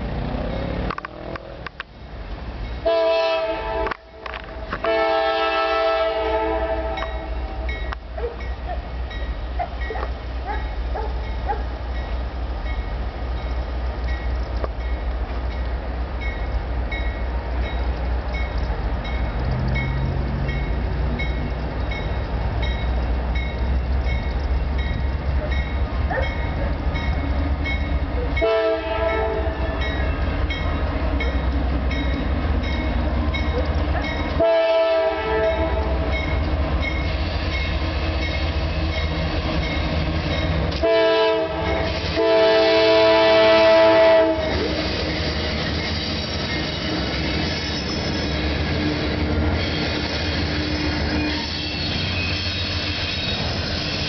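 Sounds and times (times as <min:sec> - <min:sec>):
diesel locomotives rumbling: 0:00.0 - 0:54.0
locomotive air horn: 0:02.8 - 0:07.7, 0:28.4 - 0:29.9, 0:34.4 - 0:36.2, 0:40.8 - 0:44.9, 0:48.1 - 0:54.0.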